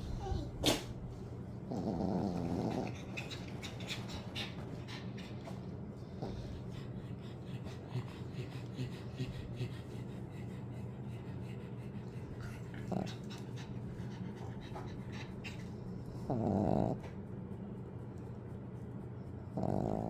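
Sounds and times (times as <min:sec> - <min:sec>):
dog snoring: 0:01.6 - 0:03.1, 0:16.1 - 0:17.2, 0:19.6 - 0:20.0.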